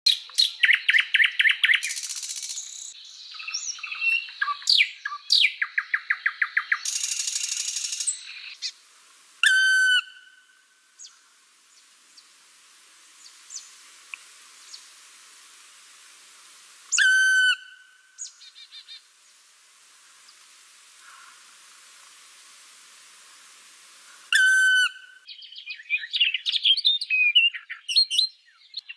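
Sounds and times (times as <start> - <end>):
songbirds singing: 0.1 - 8.8, 24.2 - 28.9.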